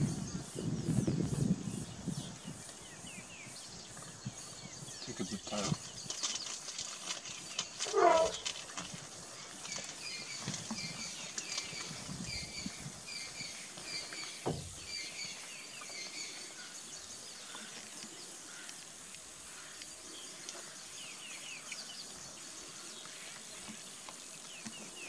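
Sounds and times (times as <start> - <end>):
dull thump: 14.4 - 14.9.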